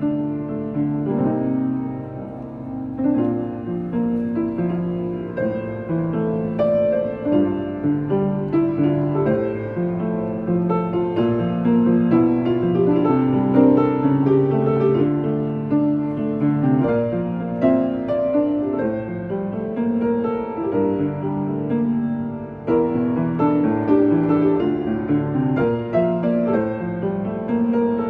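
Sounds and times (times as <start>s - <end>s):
solo piano melody: 0.0s - 28.0s.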